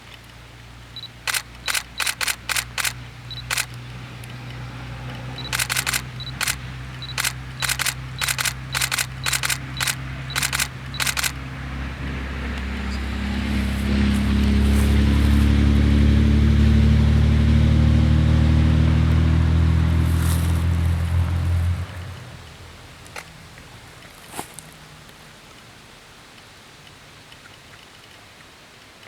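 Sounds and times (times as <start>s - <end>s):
vehicle engine: 0.3s - 25.3s
short high beeps: 1.0s - 3.7s, 5.4s - 11.4s
camera shutter clicking: 1.0s - 4.4s, 5.4s - 11.4s.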